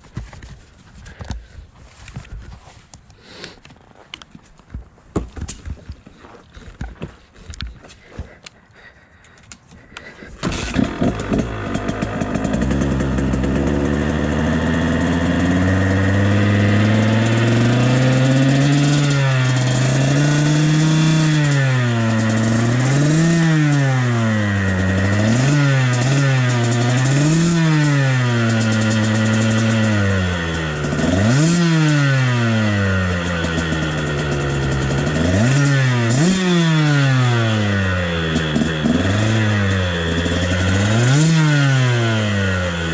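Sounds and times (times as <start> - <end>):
dirt bike engine revving: 10.4 - 42.9.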